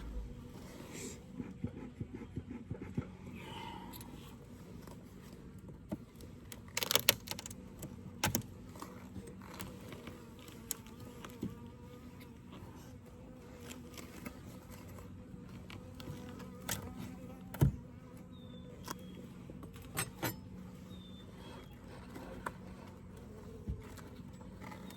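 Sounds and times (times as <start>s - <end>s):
honeybees humming: 0.0s - 24.9s
wooden hive frames clicking and knocking: 4.8s - 12.4s, 13.2s - 24.9s.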